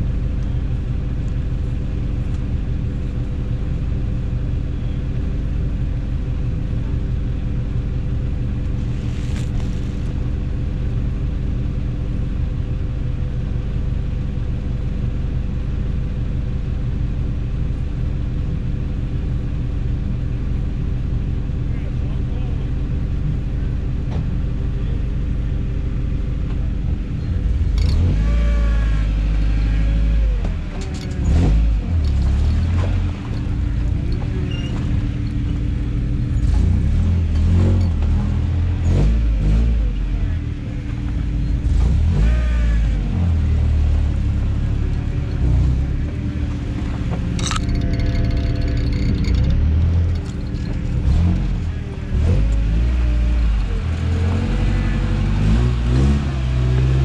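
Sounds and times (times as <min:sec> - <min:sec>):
truck engine revving unevenly: 0:26.5 - 0:57.0.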